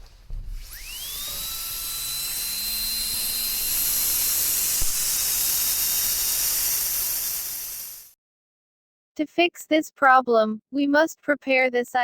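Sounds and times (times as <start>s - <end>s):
dental drill whine: 0.4s - 8.2s
air hiss: 4.2s - 8.2s.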